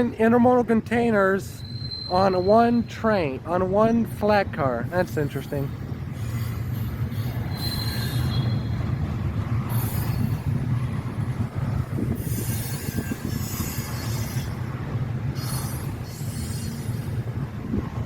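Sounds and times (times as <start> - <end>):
high wheel squeal: 1.5 - 2.9, 5.0 - 10.8, 12.0 - 17.3
train wheels rumbling on rail: 3.6 - 18.0
rushing hiss of passing cars: 4.9 - 18.0.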